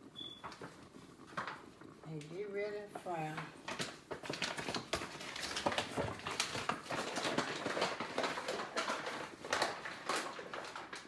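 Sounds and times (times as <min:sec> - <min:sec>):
chicken wings shaken in flour bag: 0:03.8 - 0:11.0.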